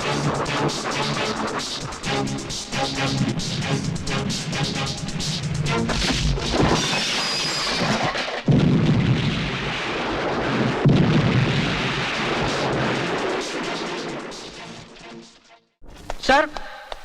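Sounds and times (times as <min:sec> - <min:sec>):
loud explosion blasts: 0:05.7 - 0:14.6.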